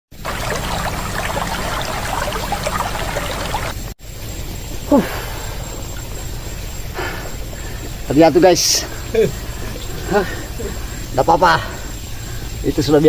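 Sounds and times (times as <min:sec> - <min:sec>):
rushing water: 0:00.1 - 0:03.9
stream trickling over stones: 0:00.1 - 0:13.0.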